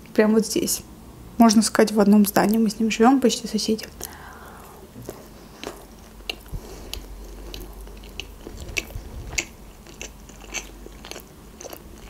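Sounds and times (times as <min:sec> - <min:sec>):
person chewing with wet mouth clicks: 0:03.8 - 0:12.0.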